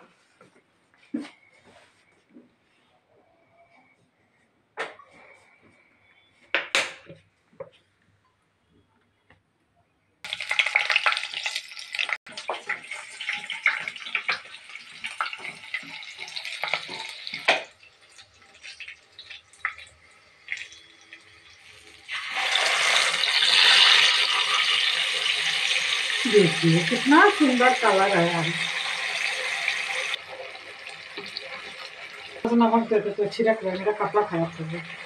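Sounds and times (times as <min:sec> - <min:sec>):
puree poured into hot oil: 0:10.3 - 0:32.5
garlic sizzling in hot oil: 0:10.3 - 0:35.0.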